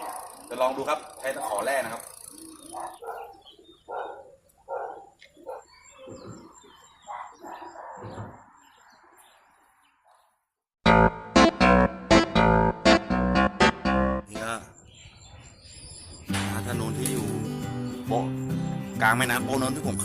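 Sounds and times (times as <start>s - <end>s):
bird calling: 0.0s - 10.3s.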